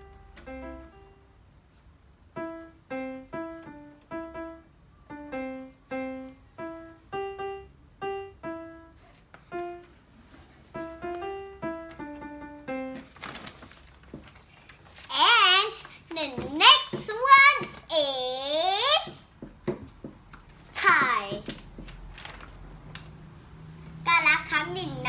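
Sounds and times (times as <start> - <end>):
simple piano melody: 0.0 - 13.6.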